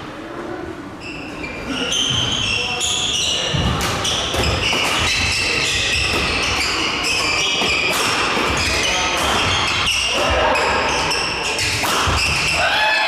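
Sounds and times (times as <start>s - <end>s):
shoes squeaking: 1.0s - 12.6s
racket hitting shuttlecock: 3.7s - 10.4s, 11.6s - 12.6s.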